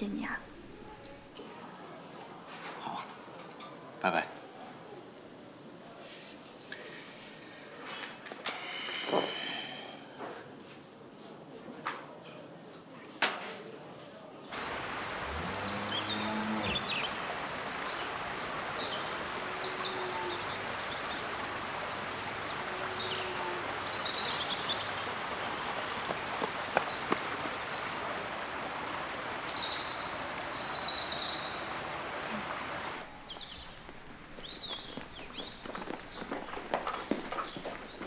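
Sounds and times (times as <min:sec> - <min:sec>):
steady hiss: 0:08.4 - 0:10.1, 0:14.5 - 0:38.0
birds chirping: 0:14.6 - 0:38.0.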